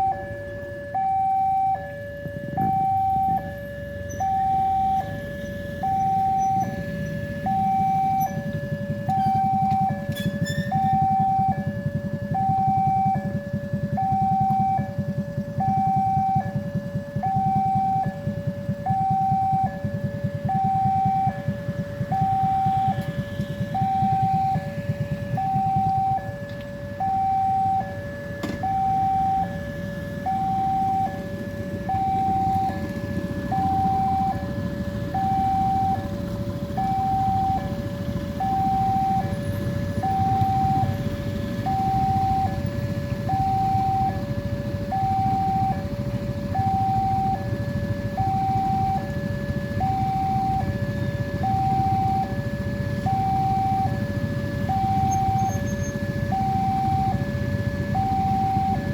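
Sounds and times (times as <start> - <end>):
two-tone crossing alarm: 0.0 - 58.9.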